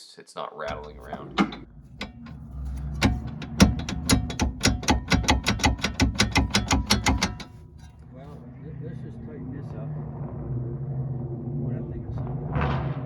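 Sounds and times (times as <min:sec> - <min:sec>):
ratchet wrench clicking: 0:00.7 - 0:08.0.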